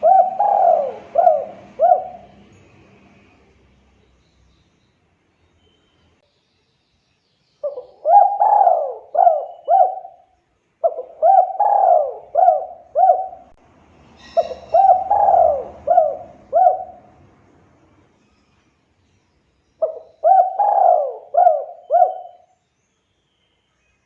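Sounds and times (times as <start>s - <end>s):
dove cooing: 0.0s - 2.5s, 7.6s - 10.2s, 10.8s - 13.6s, 14.3s - 17.2s, 19.8s - 22.5s.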